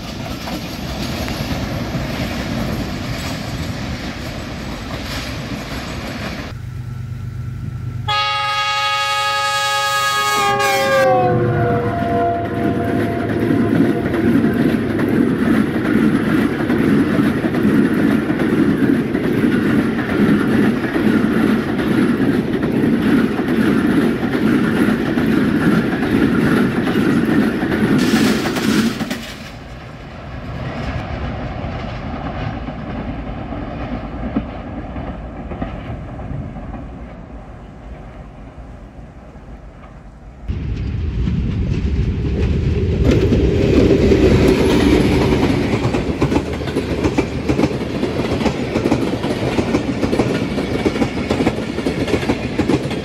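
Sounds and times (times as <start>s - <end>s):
train wheels rumbling on track: 0.0s - 53.0s
train horn chord: 6.6s - 14.4s.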